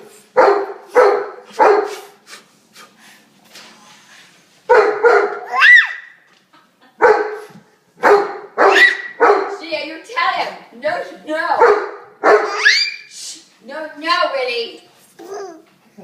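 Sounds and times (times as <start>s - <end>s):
dog barking: 0.4s - 2.2s, 4.7s - 6.2s, 7.0s - 9.6s, 11.6s - 13.0s
dog squealing: 5.4s - 6.2s, 8.6s - 9.2s, 12.4s - 13.1s.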